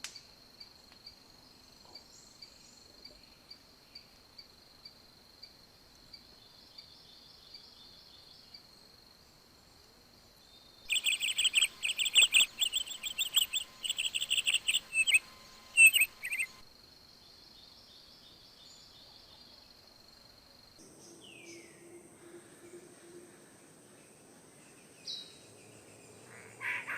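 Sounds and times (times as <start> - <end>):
crickets droning: 0.0 - 26.9
bird chirping loudly: 10.9 - 16.6, 26.3 - 26.9.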